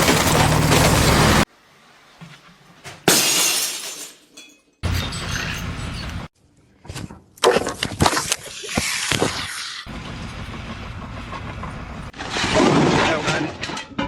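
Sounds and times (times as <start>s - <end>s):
sharp knocks and clattering: 0.0s - 1.5s.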